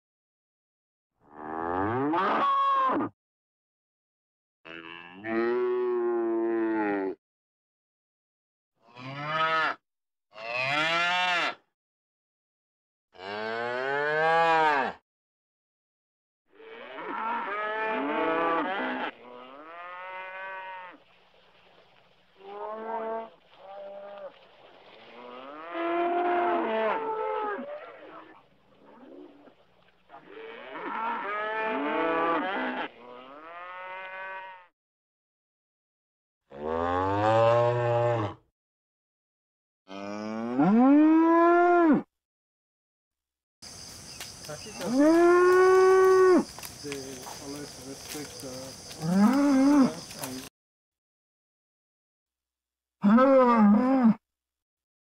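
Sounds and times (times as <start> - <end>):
cow mooing: 1.3 - 3.1, 4.7 - 7.2, 8.9 - 11.6, 13.2 - 15.0, 16.6 - 21.0, 25.2 - 28.1, 30.2 - 34.7, 36.5 - 38.4, 39.9 - 42.1, 44.8 - 46.5, 49.0 - 50.1, 53.0 - 54.2.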